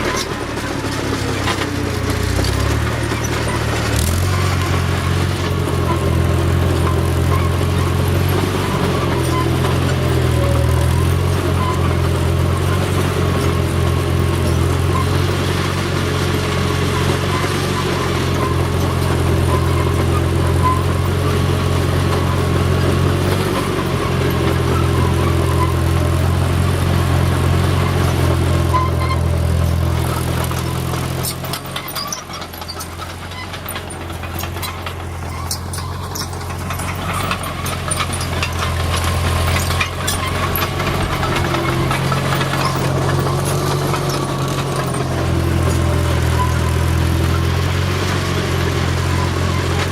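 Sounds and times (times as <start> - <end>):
backhoe engine running: 0.0 - 49.9
clicks and clanks: 29.0 - 46.8.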